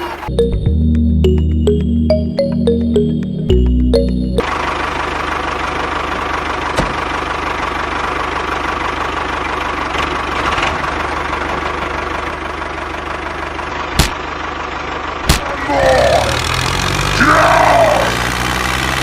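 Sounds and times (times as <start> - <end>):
small motor running rattly: 15.9 - 17.2.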